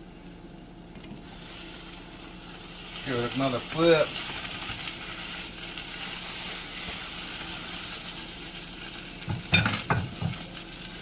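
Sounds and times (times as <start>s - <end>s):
omelette sizzling in a skillet: 0.0s - 11.0s
spatula scraping and knocking pan: 9.2s - 10.6s.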